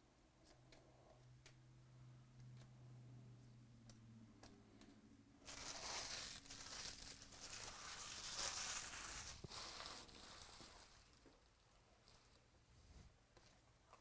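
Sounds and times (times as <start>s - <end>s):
plastic wrapper tearing and crinkling: 5.5s - 11.5s.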